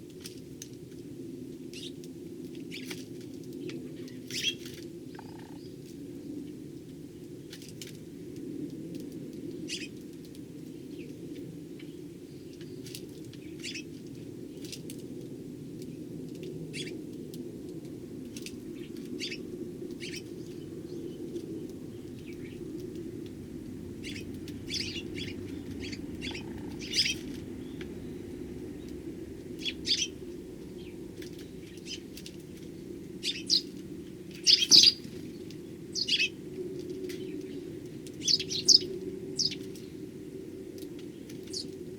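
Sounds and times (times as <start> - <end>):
sparrows chirping: 4.0 - 5.8, 11.8 - 13.9, 18.8 - 40.1, 41.0 - 41.8.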